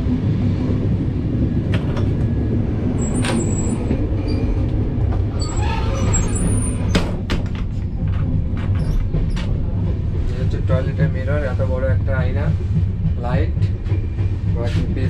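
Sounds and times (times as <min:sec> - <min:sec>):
train running rumble: 0:00.0 - 0:15.0
sharp clicks and knocks: 0:01.7 - 0:02.3, 0:06.9 - 0:10.0.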